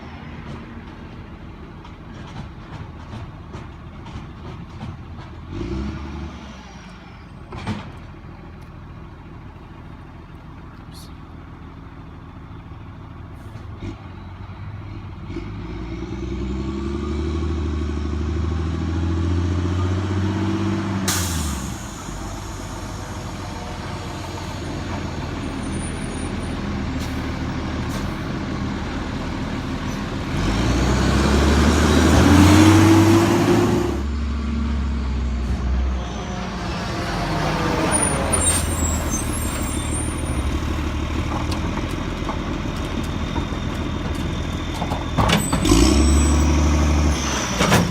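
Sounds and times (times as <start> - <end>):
truck engine revving: 5.4 - 6.8, 13.7 - 47.9.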